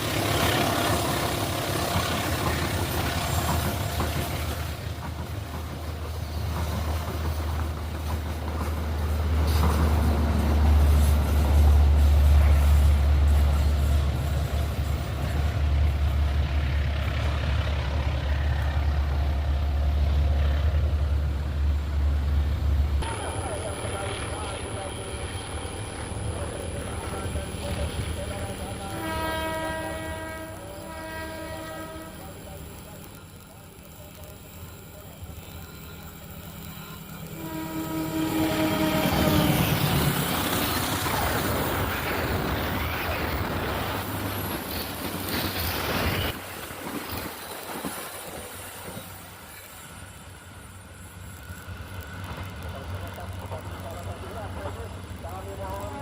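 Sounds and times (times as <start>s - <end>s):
passenger train passing: 0.0s - 56.0s
train horn: 28.7s - 32.4s, 37.3s - 39.6s.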